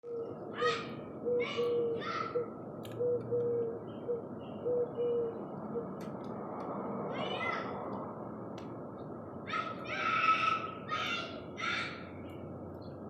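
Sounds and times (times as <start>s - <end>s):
harsh raspy bird calls: 0.0s - 6.0s, 9.5s - 12.3s
low repeated bird call: 0.0s - 6.0s.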